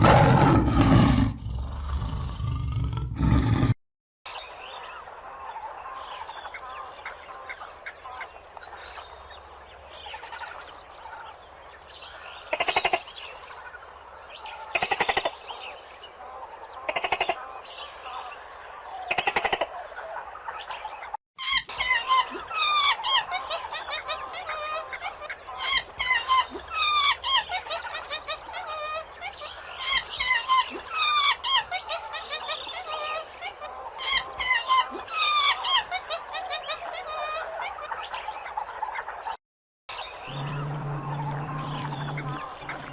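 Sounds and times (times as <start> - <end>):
chorus of birds chirping: 0.0 - 3.7, 4.3 - 42.9
harsh rasping bird calls: 39.9 - 42.9.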